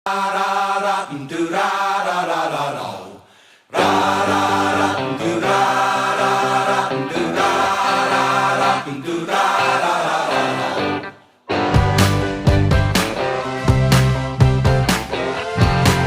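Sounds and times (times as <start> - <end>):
choir singing long chords: 0.1 - 11.2.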